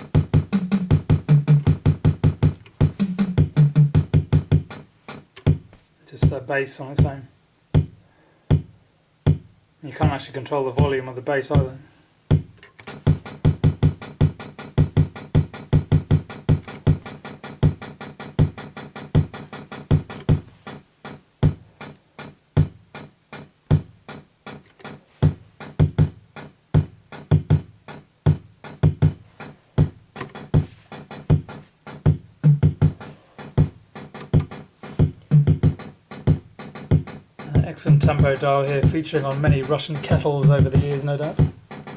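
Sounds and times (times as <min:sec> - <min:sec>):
clicking electronic percussion: 0:00.0 - 0:05.7, 0:07.8 - 0:08.7, 0:12.3 - 0:41.9
drum machine bass-drum thumps: 0:00.0 - 0:41.9.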